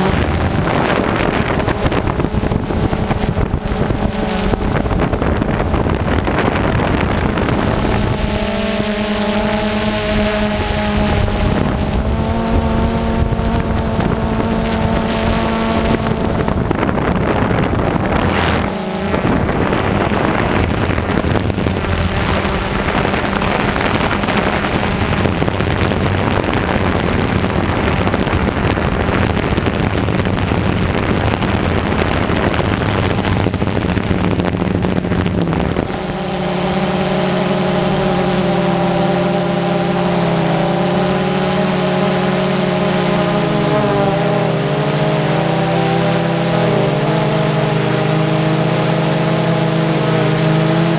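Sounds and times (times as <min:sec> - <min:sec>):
drone propellers humming: 0:00.0 - 0:50.9
wind rush over microphone: 0:00.0 - 0:50.9.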